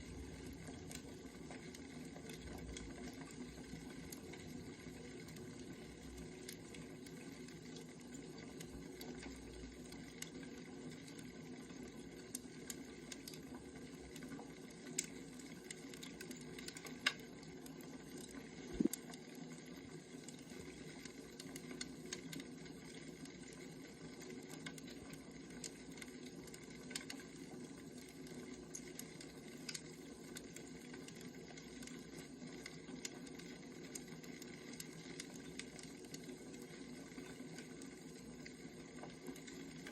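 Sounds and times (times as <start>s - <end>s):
fire pops and snaps: 18.7s - 19.2s.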